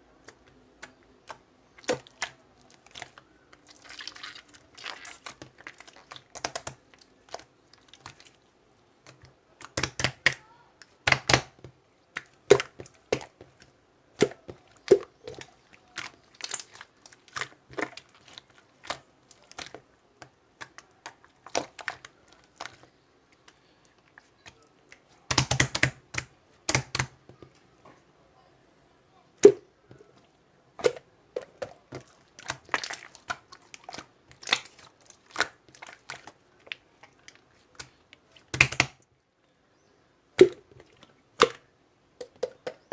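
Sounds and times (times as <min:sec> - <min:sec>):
slime sticky clicks and pops: 0:38.5 - 0:39.0.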